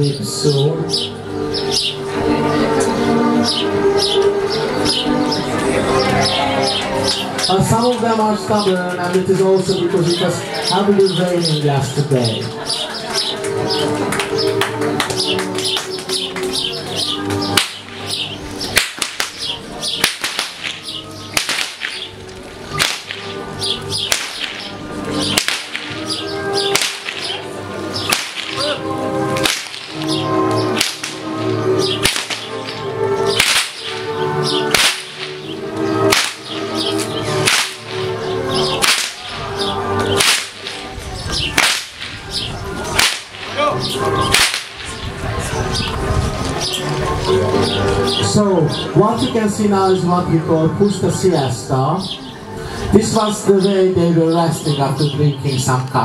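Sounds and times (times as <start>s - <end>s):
background music: 0.0s - 56.0s
whips cracking: 14.1s - 45.0s.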